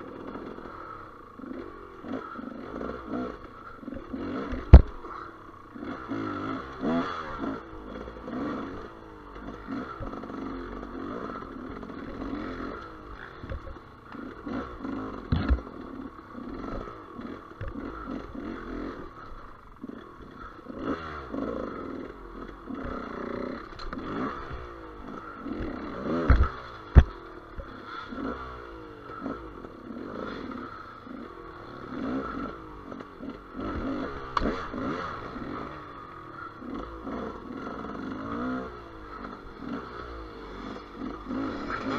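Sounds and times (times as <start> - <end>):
motorcycle engine revving: 0.0 - 41.9
sharp knocks and clatter: 25.6 - 27.7.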